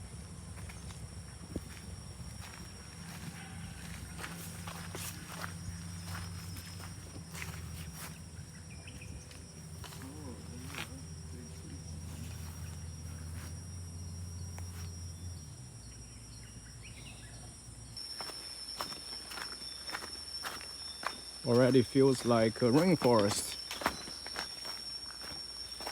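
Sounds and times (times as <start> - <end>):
insects droning high-pitched: 0.0 - 25.9
footsteps: 1.6 - 8.2, 18.1 - 25.9.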